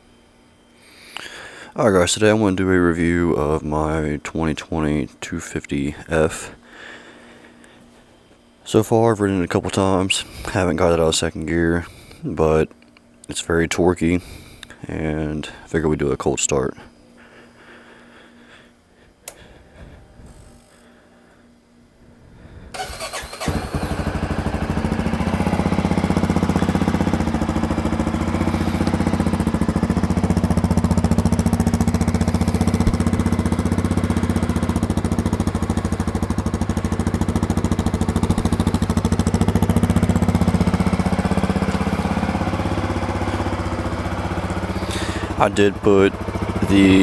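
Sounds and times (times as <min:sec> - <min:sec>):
motorcycle engine starting and idling: 0:22.7 - 0:47.0.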